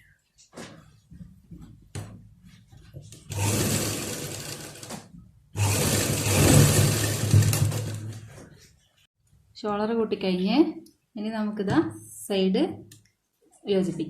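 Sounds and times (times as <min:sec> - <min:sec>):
sewing machine stitching: 0:03.2 - 0:08.4.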